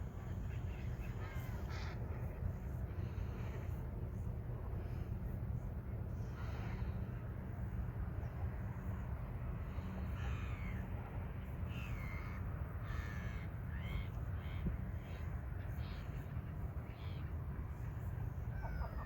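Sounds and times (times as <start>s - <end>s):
steady low rumble: 0.0s - 19.0s
crows cawing: 11.9s - 14.0s.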